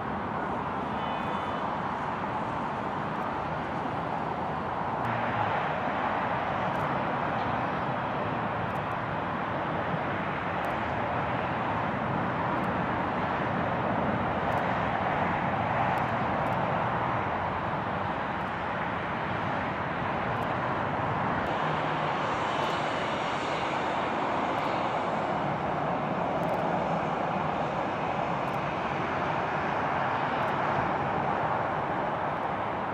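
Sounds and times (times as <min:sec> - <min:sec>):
distant airliner engines: 0:00.0 - 0:32.9.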